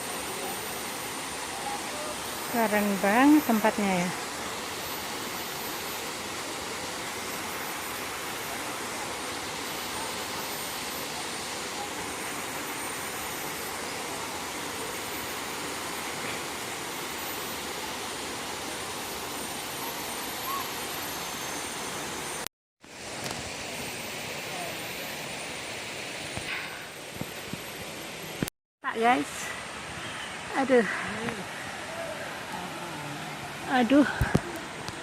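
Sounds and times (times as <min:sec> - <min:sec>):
waterfall rushing: 0:00.0 - 0:22.4, 0:29.6 - 0:35.0.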